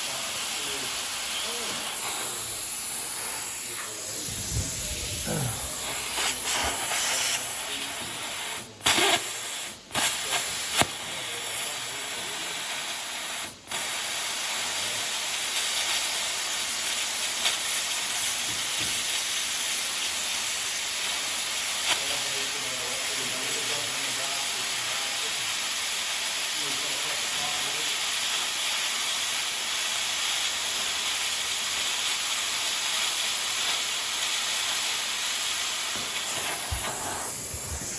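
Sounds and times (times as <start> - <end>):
plasma cutter hissing: 0.0 - 37.9
sharp cracks of arc: 8.8 - 11.1.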